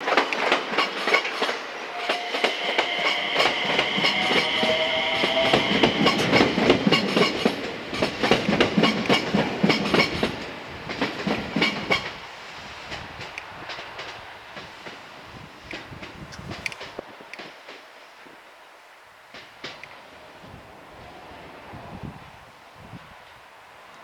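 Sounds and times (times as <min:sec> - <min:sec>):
train wheels clicking on rails: 0:00.0 - 0:18.6, 0:19.2 - 0:20.5
high squealing tone: 0:01.9 - 0:06.7.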